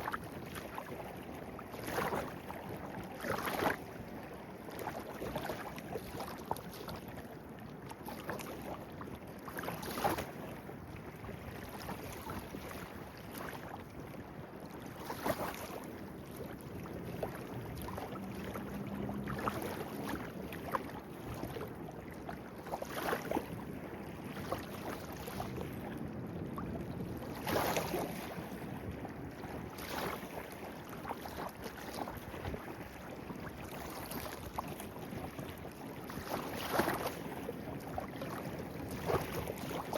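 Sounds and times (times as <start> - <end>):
stream flowing: 17.0 - 21.5
water splashing: 17.2 - 21.4.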